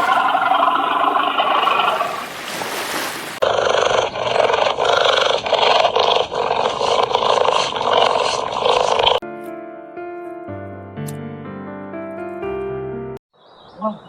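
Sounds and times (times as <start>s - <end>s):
animal growling: 3.4s - 9.2s.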